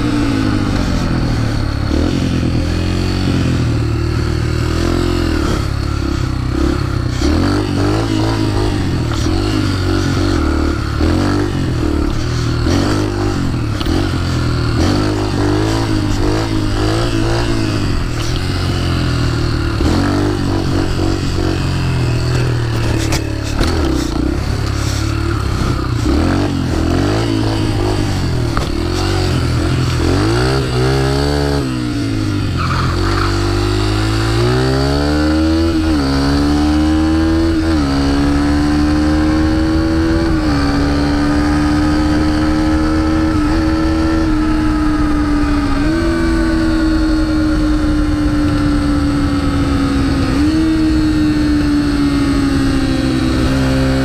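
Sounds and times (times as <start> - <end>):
pit bike engine revving: 0.0 - 54.0.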